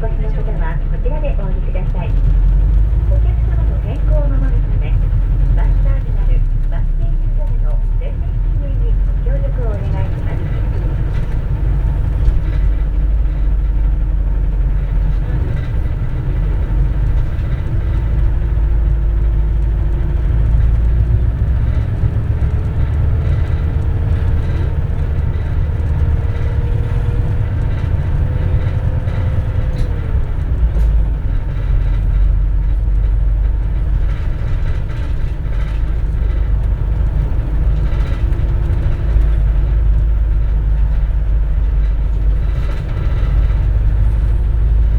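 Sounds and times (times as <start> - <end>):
bus engine and road rumble: 0.0 - 44.9.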